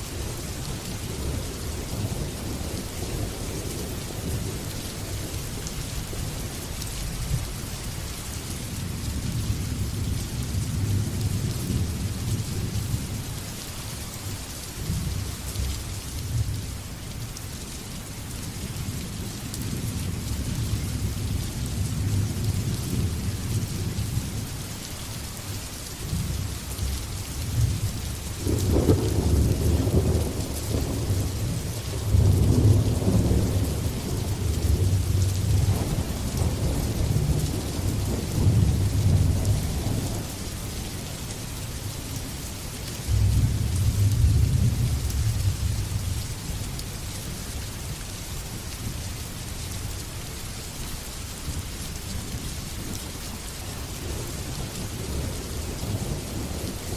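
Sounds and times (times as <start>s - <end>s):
steady rain falling: 0.0s - 56.9s
rolling thunder: 28.4s - 40.4s, 43.1s - 46.1s.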